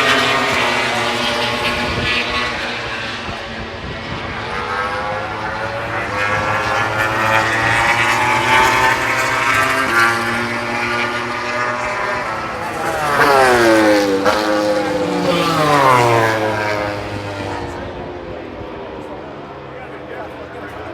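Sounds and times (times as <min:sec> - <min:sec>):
racing motorcycles at full throttle: 0:00.0 - 0:20.9.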